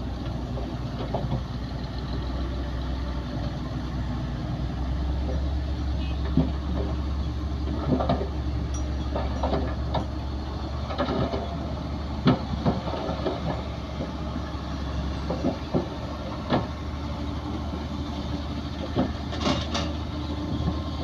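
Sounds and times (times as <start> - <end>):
diesel engine drone: 0.0 - 21.0
metallic clanks and squeals: 6.0 - 11.8, 18.8 - 20.1.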